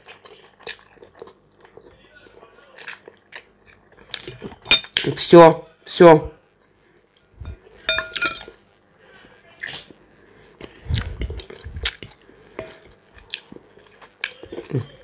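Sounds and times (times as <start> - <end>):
chewing: 0.0 - 4.6, 10.6 - 15.0
fork clinking on ceramic bowl: 7.4 - 8.5, 12.0 - 12.9.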